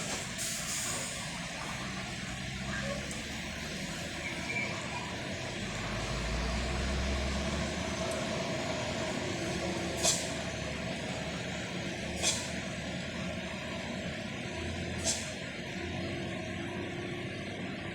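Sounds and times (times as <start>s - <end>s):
diesel truck engine: 0.0s - 17.9s
air brake hisses: 0.4s - 1.2s, 10.0s - 10.4s, 12.2s - 12.6s, 15.0s - 15.4s.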